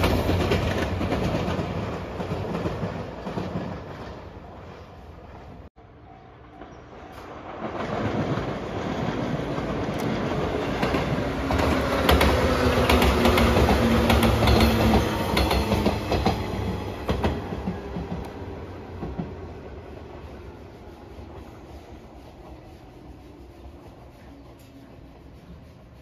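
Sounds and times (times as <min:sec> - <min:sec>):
electric train passing: 0:00.0 - 0:26.0
wheels clacking over rail joints: 0:06.6 - 0:19.4.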